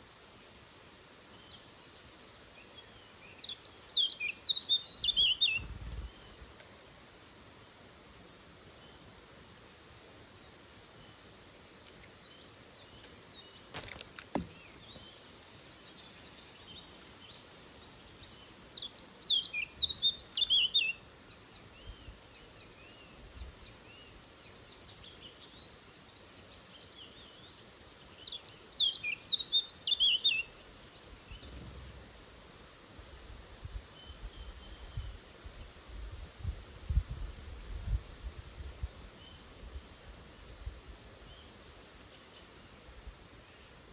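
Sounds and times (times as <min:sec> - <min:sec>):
songbird singing: 0:00.0 - 0:07.2, 0:07.8 - 0:09.4, 0:10.2 - 0:43.9
faint outdoor hiss: 0:00.0 - 0:43.9.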